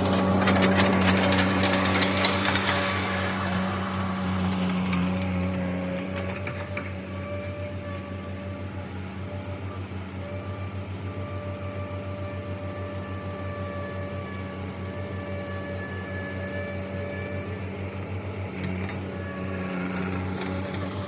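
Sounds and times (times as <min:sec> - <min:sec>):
vehicle engine idling: 0:00.0 - 0:07.2.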